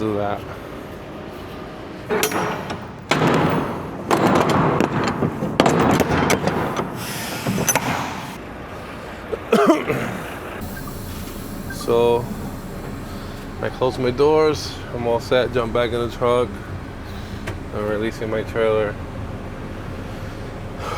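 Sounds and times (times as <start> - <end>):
metal trailer doors clanking shut: 2.1 - 8.4, 10.6 - 20.9.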